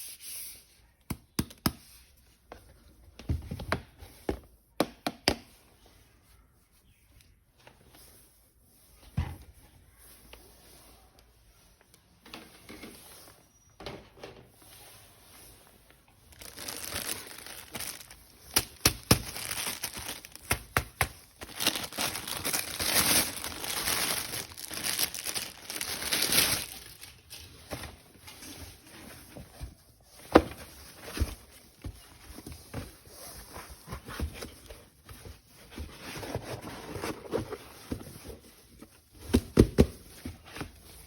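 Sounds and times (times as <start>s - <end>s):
packaging crinkling and tearing: 16.3s - 27.6s.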